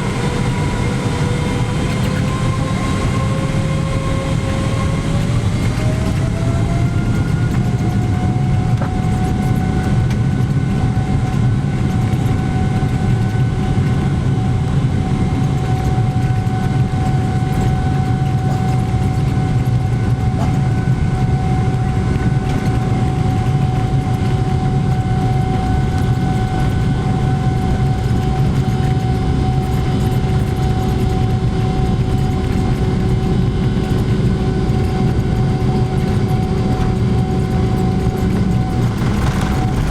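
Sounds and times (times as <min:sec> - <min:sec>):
jet engine whine: 0:00.0 - 0:39.9
heavy engine rumble: 0:35.0 - 0:39.9.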